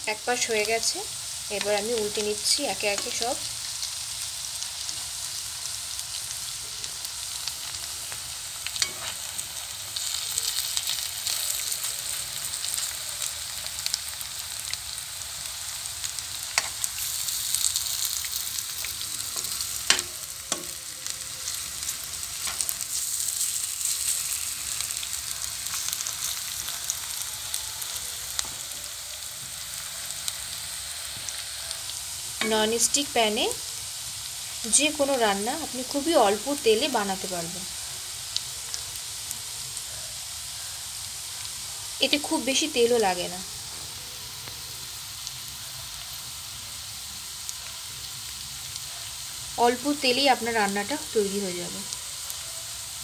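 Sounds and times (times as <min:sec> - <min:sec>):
fritters sizzling in a pan: 0:00.0 - 0:53.0
metal spoon tapping and scraping pan: 0:08.8 - 0:09.2, 0:19.4 - 0:20.8.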